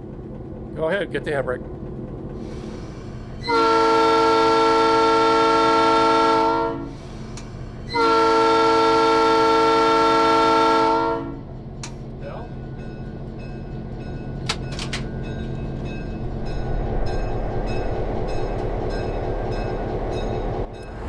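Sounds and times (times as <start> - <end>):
locomotive air horn blasts: 3.4 - 7.0, 7.9 - 11.4.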